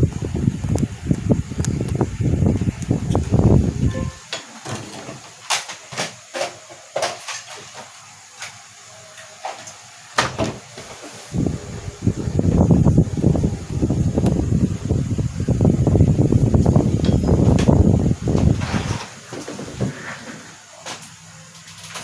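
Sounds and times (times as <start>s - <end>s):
low rumbling noise: 0.0s - 4.2s, 11.4s - 18.8s.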